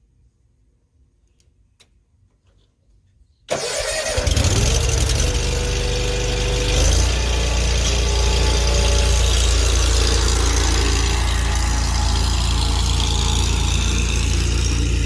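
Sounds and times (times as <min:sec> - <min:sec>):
riding mower engine starting: 0:03.5 - 0:15.0.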